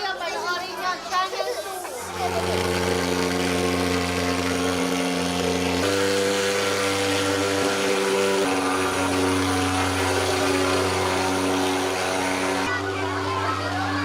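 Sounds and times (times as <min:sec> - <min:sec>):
fogging machine buzzing drone: 0:02.0 - 0:14.0.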